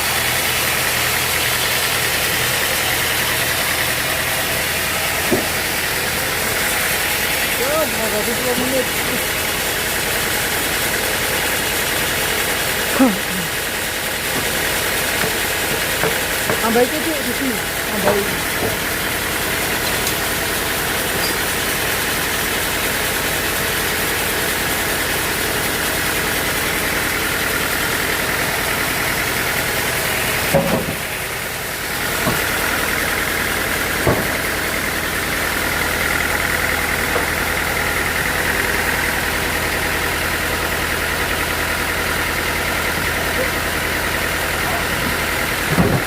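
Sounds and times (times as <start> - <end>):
sawmill machinery humming: 0.0 - 46.0
sharp knocks: 5.2 - 5.7.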